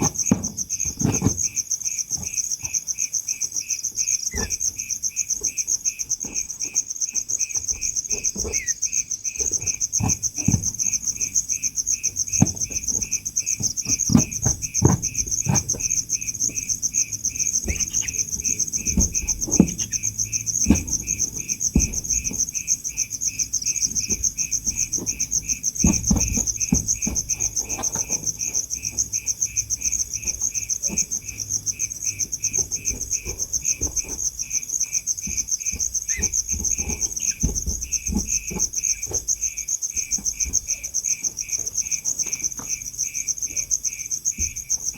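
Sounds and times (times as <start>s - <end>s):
high-pitched insect trill: 0.0s - 44.9s
slow regular insect chirping: 0.0s - 44.9s
low thumps and knocks: 4.2s - 42.9s.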